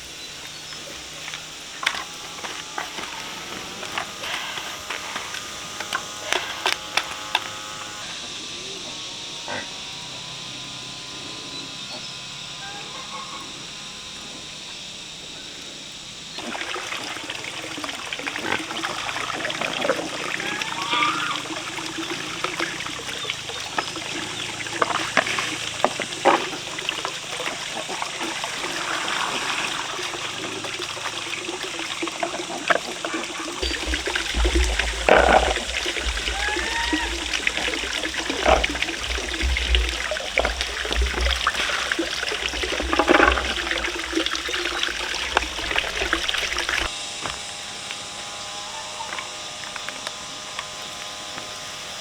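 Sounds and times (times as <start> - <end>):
water trickling: 0.0 - 8.4, 16.2 - 47.0.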